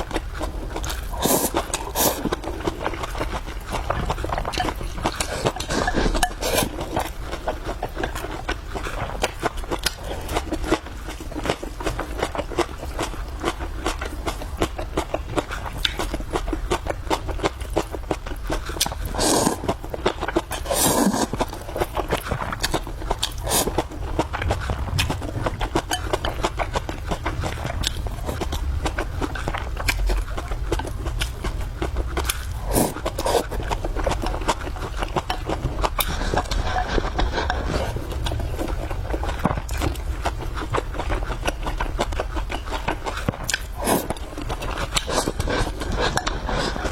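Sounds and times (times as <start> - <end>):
chewing with wet mouth smacks: 0.0 - 46.9
rush of noise: 23.4 - 28.7.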